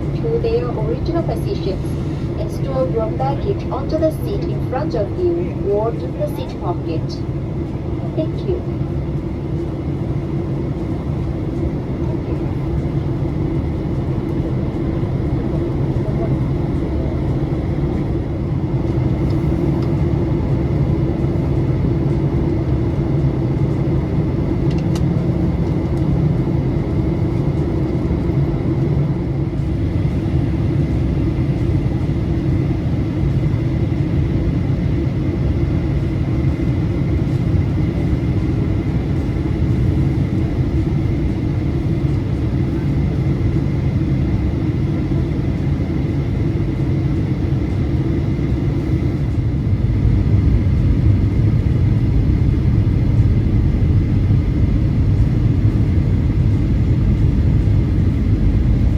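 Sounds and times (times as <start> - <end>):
thin steady whine: 0.0 - 9.3
engine and airflow rumble: 0.0 - 58.9.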